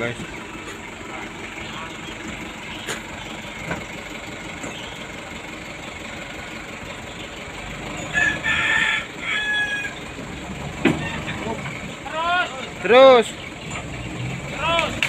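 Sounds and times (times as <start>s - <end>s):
vehicle engine idling: 0.0s - 15.0s
rooster crowing: 8.0s - 10.0s.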